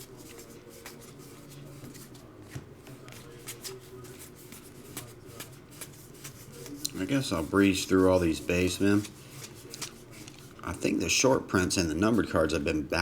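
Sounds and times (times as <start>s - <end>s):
trading cards flipped by hand: 8.8s - 10.5s.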